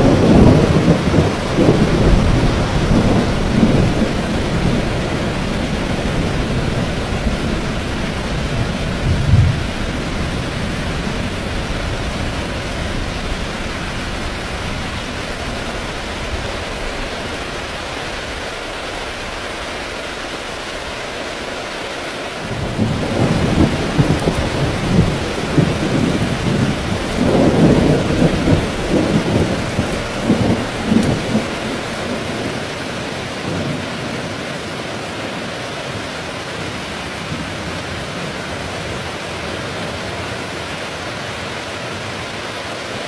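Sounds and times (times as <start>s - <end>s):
thunder rumbling: 0.0s - 21.0s, 22.4s - 34.6s
heavy rain: 0.0s - 43.0s.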